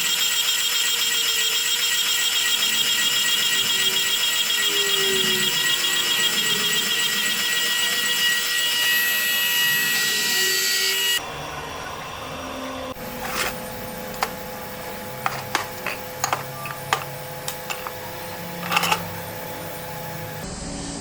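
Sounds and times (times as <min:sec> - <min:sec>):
power tool whirring: 0:00.0 - 0:11.2, 0:13.0 - 0:20.4
handling clicks and knocks: 0:13.1 - 0:19.2.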